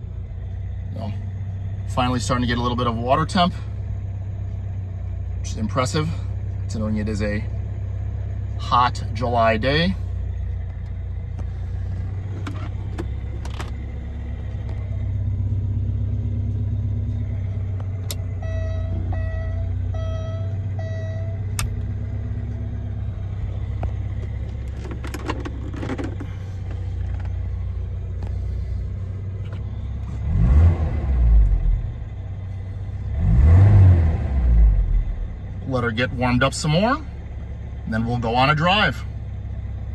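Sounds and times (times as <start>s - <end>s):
car engine idling: 0.0s - 39.9s
short beeps: 18.3s - 21.6s.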